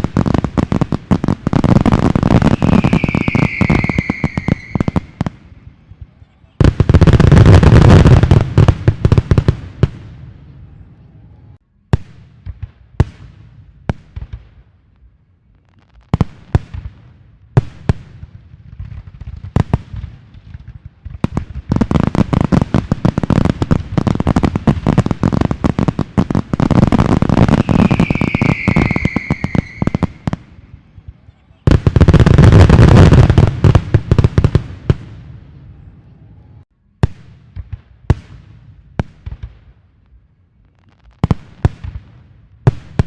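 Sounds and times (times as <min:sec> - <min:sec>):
fireworks crackling bangs: 0:00.0 - 0:10.6, 0:15.6 - 0:35.9, 0:36.6 - 0:43.0
firework whistle falling: 0:02.3 - 0:05.4, 0:27.4 - 0:30.3.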